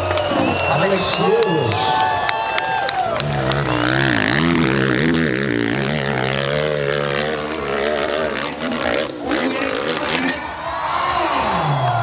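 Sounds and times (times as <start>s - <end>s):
dirt bike engine revving: 3.0s - 10.6s.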